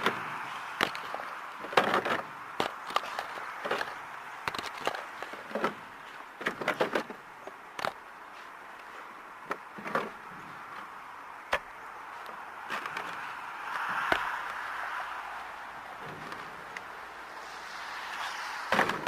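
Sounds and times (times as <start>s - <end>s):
steady hiss: 13.6s - 19.0s.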